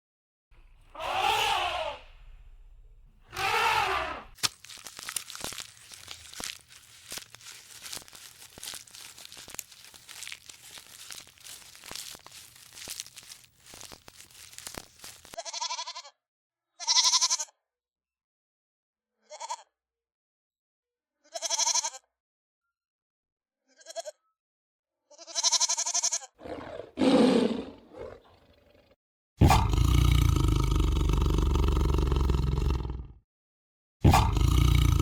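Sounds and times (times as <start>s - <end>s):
animal bleating: 0.9s - 2.1s, 3.3s - 4.4s, 6.0s - 16.1s, 16.8s - 17.5s, 21.3s - 22.0s, 23.7s - 24.2s, 25.1s - 28.4s
low rough animal call: 0.9s - 2.3s, 3.2s - 4.4s, 26.4s - 33.2s.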